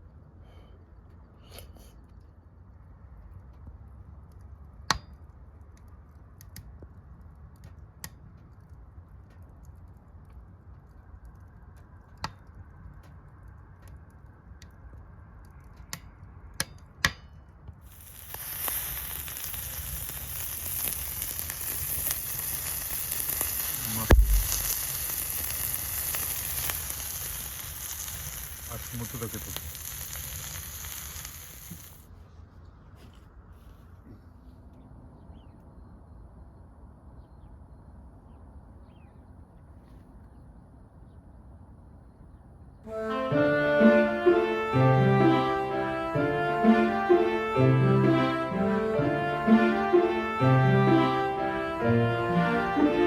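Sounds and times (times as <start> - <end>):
sharp clicks and crackles: 2.1 - 16.9, 17.8 - 32.0
food sizzling in a pot: 17.9 - 32.0
dull thump: 24.1 - 24.6.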